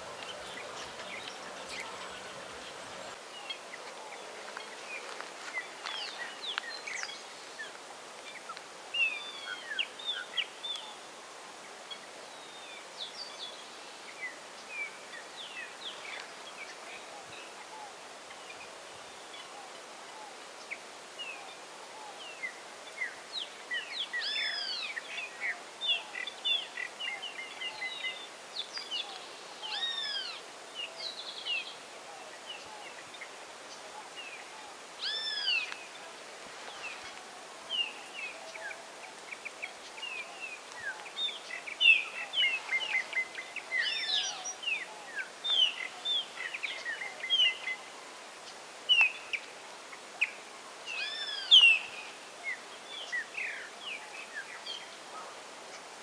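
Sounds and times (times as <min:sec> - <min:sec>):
birds chirping: 0:00.0 - 0:10.9
faint outdoor hiss: 0:00.0 - 0:56.0.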